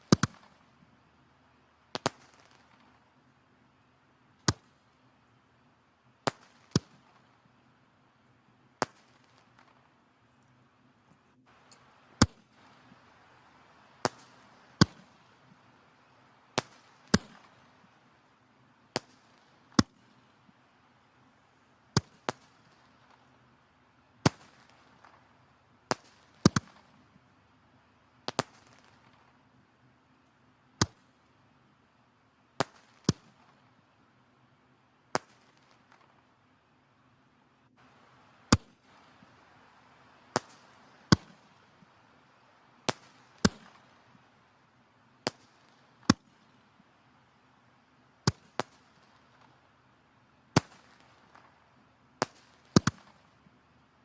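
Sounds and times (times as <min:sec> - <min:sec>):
logs crackling and popping: 0:00.0 - 0:01.0, 0:01.9 - 0:03.2, 0:08.8 - 0:18.2, 0:18.9 - 0:20.6, 0:24.2 - 0:27.3, 0:28.2 - 0:29.5, 0:37.7 - 0:47.0, 0:48.2 - 0:49.8, 0:50.5 - 0:53.6
faint steady hiss: 0:00.0 - 0:54.0.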